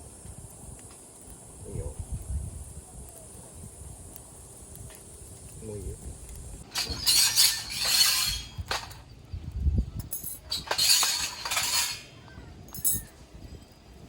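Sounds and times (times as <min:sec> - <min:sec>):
hard objects clinking and scraping: 0:06.6 - 0:09.2, 0:10.0 - 0:13.2.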